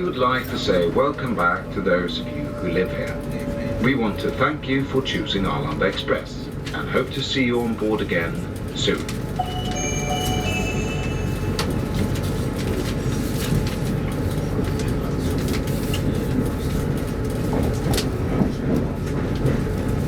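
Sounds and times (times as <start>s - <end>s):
train wheels rumbling on rail: 13.6s - 20.0s.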